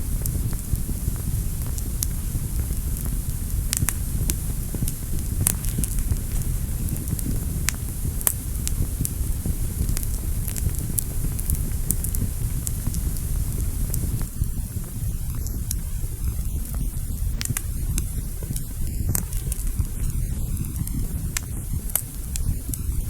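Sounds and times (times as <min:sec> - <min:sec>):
fire crackling: 0:00.0 - 0:23.0.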